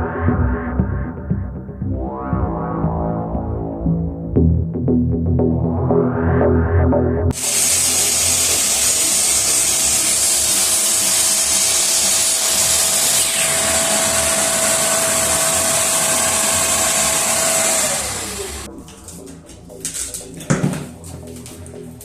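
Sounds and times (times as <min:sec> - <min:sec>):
motor spinning down: 0:07.3 - 0:18.7
power tool motor running: 0:07.4 - 0:18.7.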